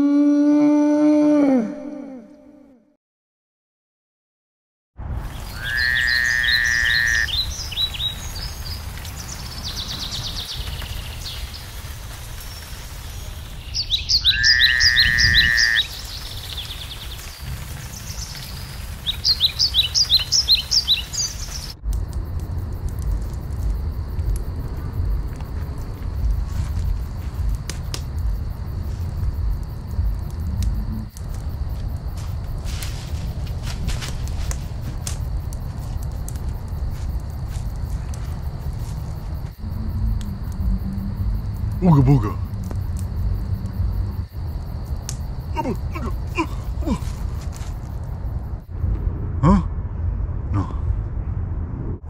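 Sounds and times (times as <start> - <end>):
songbirds singing: 5.4 - 21.8
low outdoor rumble: 21.8 - 52.0.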